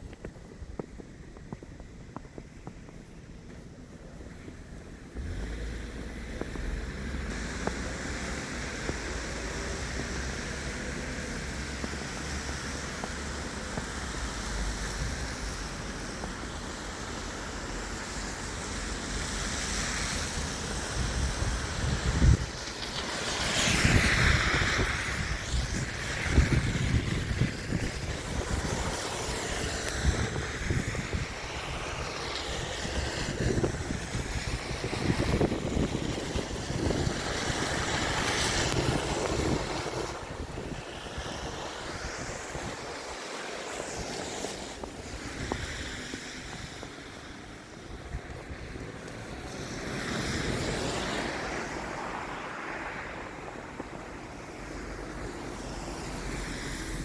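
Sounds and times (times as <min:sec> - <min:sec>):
outdoor noise: 0:00.0 - 0:57.0
wind buffeting microphone: 0:20.3 - 0:57.0.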